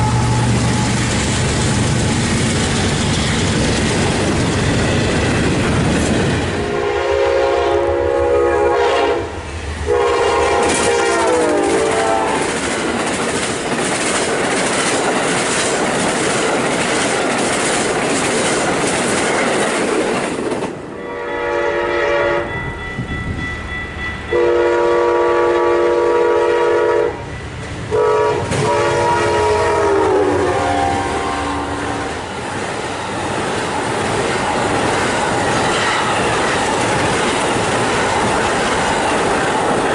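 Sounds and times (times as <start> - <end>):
train air horn blasts: 0.0 - 1.1, 6.6 - 12.5, 21.0 - 22.6, 24.3 - 32.2
train wheels clattering: 0.0 - 6.7, 9.9 - 20.8, 32.3 - 39.9.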